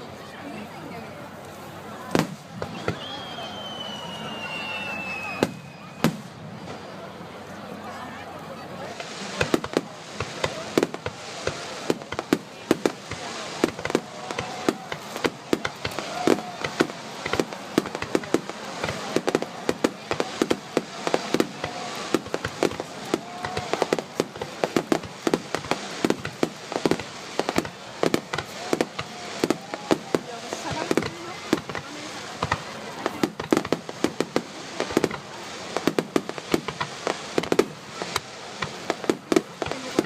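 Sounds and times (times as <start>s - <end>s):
background haze noise: 0.0s - 40.0s
fireworks bursts and bangs: 1.4s - 40.0s.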